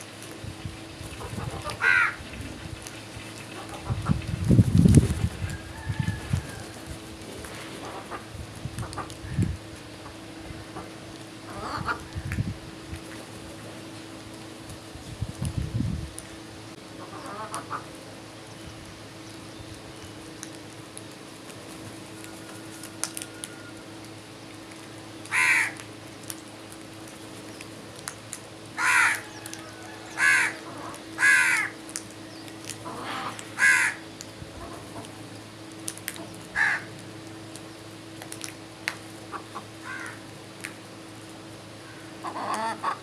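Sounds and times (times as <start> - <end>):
steady low hum: 0.0 - 43.0
crows cawing: 1.6 - 2.3, 25.3 - 25.8, 28.8 - 31.8, 32.9 - 34.0, 36.5 - 37.0, 39.3 - 40.2.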